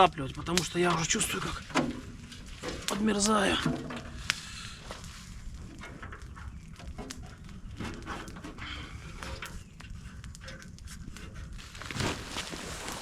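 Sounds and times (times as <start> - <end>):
rustling: 1.0 - 13.0.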